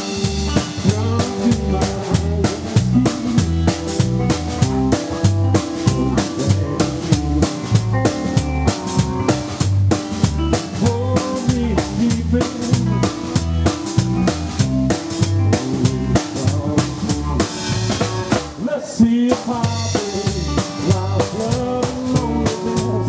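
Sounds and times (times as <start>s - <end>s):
electric lead guitar melody: 0.0s - 18.4s
double bass walking line: 0.0s - 23.0s
drum kit steady beat: 0.0s - 23.0s.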